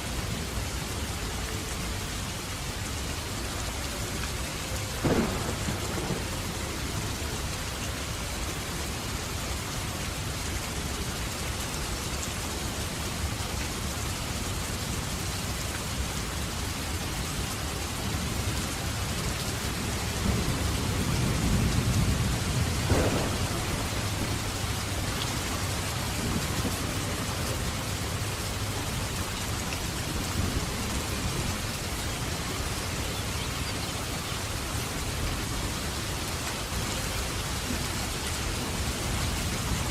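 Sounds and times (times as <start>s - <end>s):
heavy rain falling: 0.0s - 39.9s
thunder rumbling and cracking: 5.0s - 7.0s, 20.0s - 31.7s.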